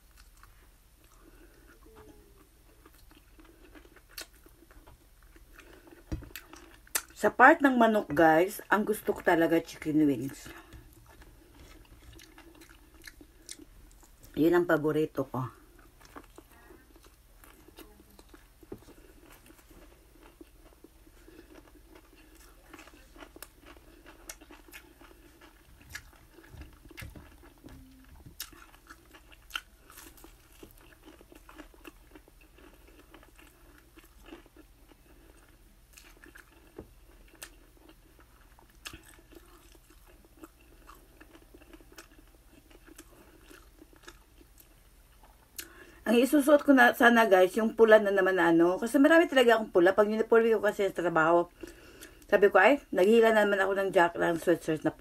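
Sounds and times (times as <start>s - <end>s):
person chewing: 0.0s - 7.2s, 10.4s - 14.4s, 15.6s - 46.0s, 51.5s - 52.3s.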